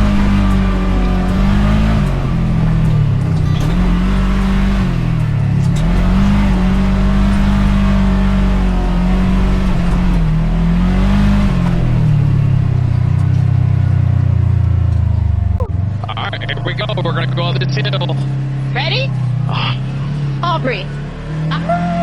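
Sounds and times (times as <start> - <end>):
utv engine revving: 0.0 - 22.0.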